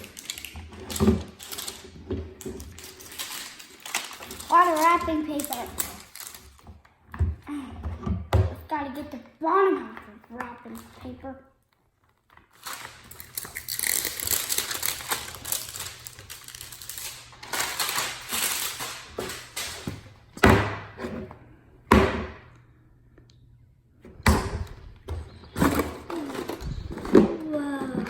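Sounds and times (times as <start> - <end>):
wrapping paper tearing and crinkling: 0.0 - 6.6, 12.1 - 20.0, 25.5 - 27.6.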